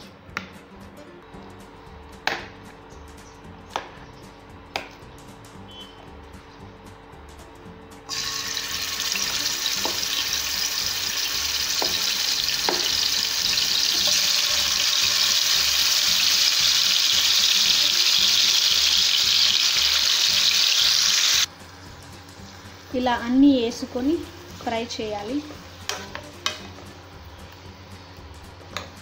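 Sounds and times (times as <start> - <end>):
chicken sizzling in hot oil: 8.1 - 23.2.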